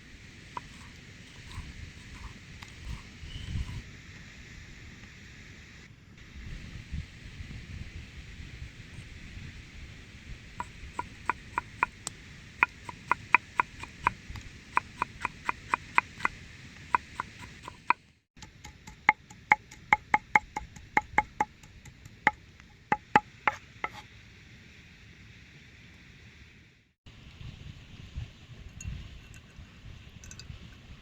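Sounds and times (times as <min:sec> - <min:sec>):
knife chopping on wooden board: 0:00.6 - 0:03.0, 0:12.6 - 0:14.2, 0:14.8 - 0:18.0.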